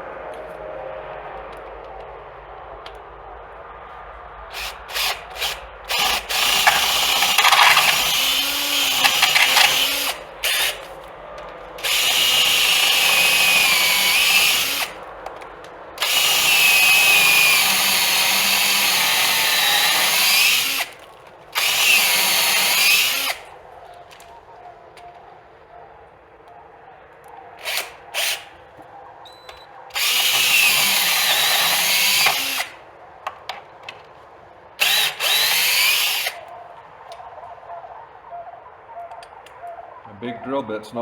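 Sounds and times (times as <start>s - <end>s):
electric drill boring into wood: 4.5s - 10.9s, 11.8s - 15.0s, 16.0s - 23.5s, 27.6s - 28.5s, 29.9s - 32.8s, 34.8s - 36.4s.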